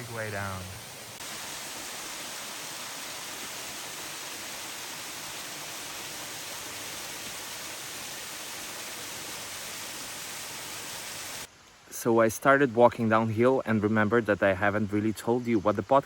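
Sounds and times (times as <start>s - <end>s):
flowing water rushing: 0.0s - 11.5s.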